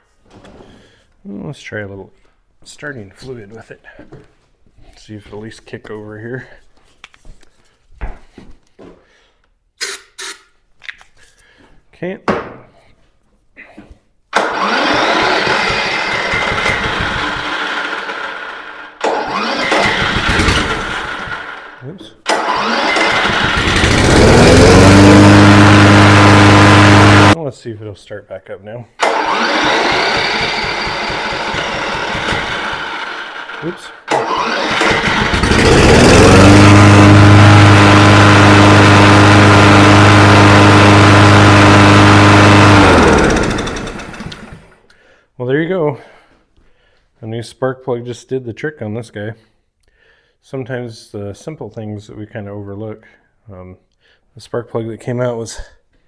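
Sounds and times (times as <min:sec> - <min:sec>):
push mower engine running: 0:14.4 - 0:27.4, 0:29.0 - 0:44.8.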